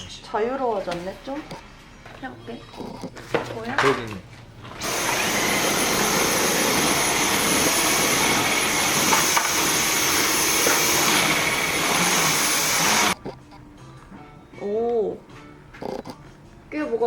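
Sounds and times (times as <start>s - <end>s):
stick vacuum whining: 4.8s - 13.2s.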